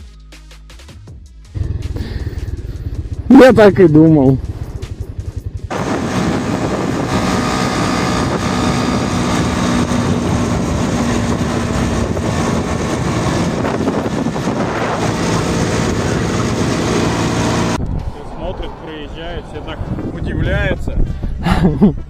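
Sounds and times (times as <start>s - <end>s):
wind rushing over microphone: 1.6s - 22.0s
scooter engine running: 4.7s - 17.8s.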